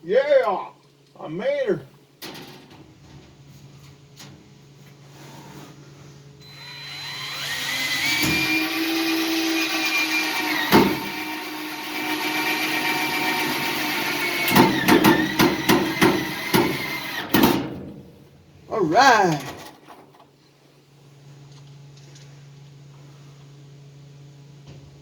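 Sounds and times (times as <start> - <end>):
electric drill whining: 6.4 - 17.3.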